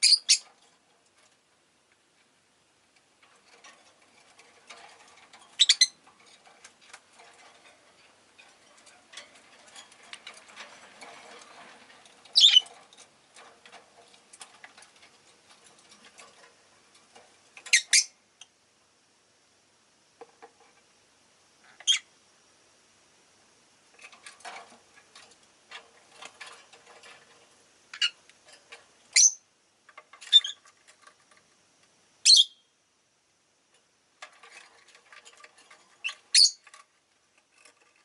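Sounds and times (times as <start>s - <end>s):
lovebirds chirping: 0.0s - 0.4s, 5.5s - 6.0s, 12.3s - 12.7s, 29.1s - 29.4s, 32.2s - 32.7s, 36.0s - 36.6s.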